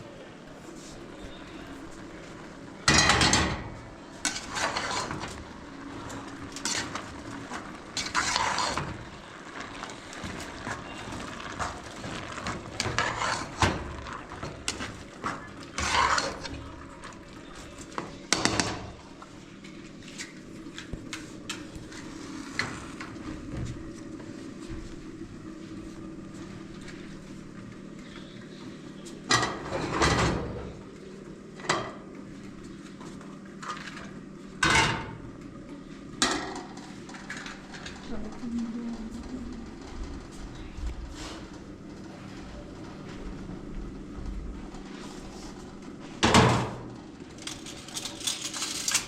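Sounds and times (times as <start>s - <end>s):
hard objects clattering and scraping: 4.2s - 19.0s, 47.3s - 49.0s.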